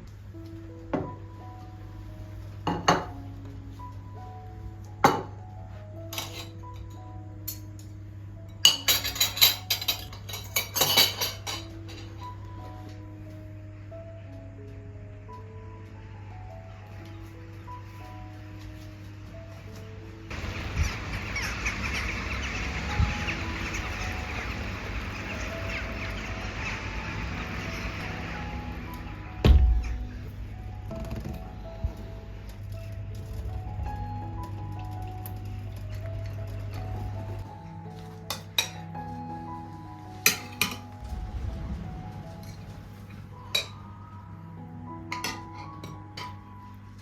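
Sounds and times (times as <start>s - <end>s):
soft background music: 0.0s - 47.0s
dishes and utensils clinking: 6.1s - 7.8s, 8.5s - 12.8s, 38.2s - 38.9s, 40.2s - 40.9s, 45.1s - 46.4s
steady hiss: 10.0s - 34.4s
birds chirping rapidly: 20.3s - 28.9s.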